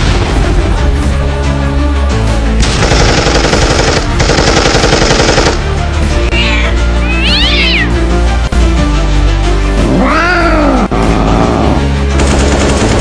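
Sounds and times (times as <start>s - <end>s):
background music: 0.0s - 13.0s
cat meowing: 6.3s - 7.9s.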